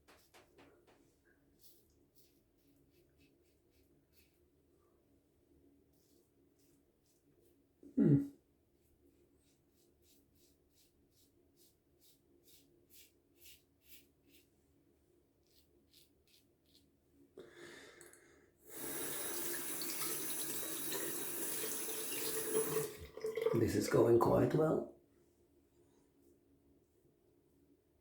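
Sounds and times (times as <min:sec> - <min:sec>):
tap running into sink: 0:19.3 - 0:23.6.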